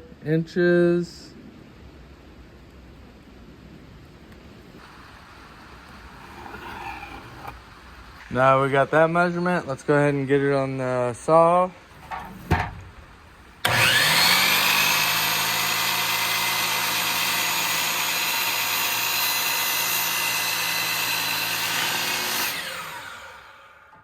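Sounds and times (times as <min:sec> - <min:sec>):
electric saw cutting wood: 0:13.6 - 0:24.0.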